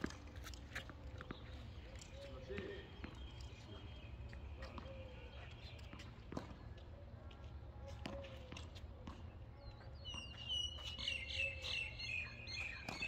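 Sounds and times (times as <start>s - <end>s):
bird singing high chirps: 9.6s - 13.0s.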